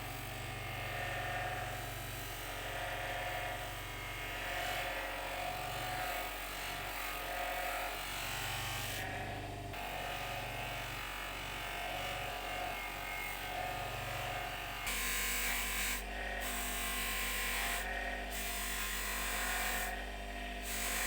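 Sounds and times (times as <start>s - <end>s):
electric power tool buzzing: 0.0s - 21.0s.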